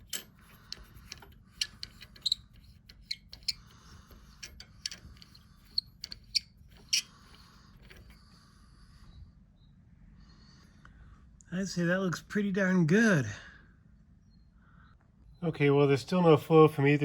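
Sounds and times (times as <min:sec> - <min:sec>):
tool scraping metal: 0:00.0 - 0:08.3.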